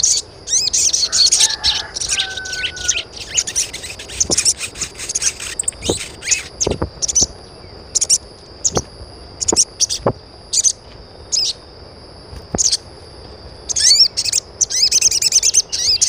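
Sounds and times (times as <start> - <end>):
birds chirping: 0.0 - 11.6, 12.5 - 12.8, 13.7 - 16.0
steady high-pitched tone: 0.0 - 11.6.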